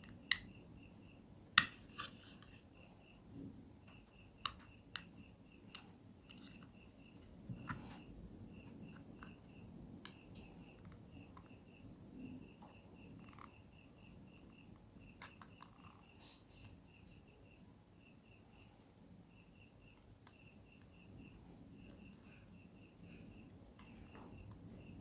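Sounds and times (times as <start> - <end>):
small tools clicking on plastic: 0.0 - 0.5, 1.6 - 2.6, 3.9 - 5.1.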